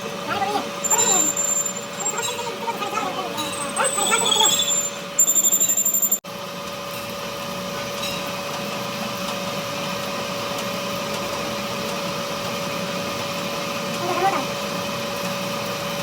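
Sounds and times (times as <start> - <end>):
pulsing high whine: 0.0 - 6.2
workshop machine humming: 0.0 - 16.0.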